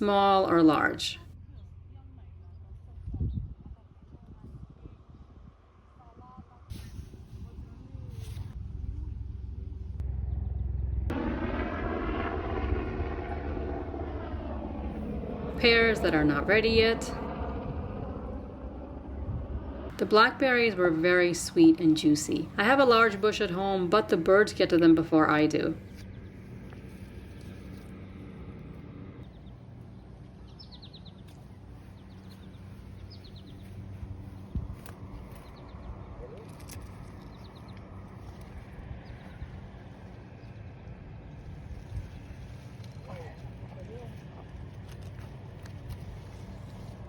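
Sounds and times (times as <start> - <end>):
steady low hum: 0.0 - 47.0
engine droning: 7.6 - 47.0
songbird calling: 29.2 - 36.4, 37.0 - 37.8.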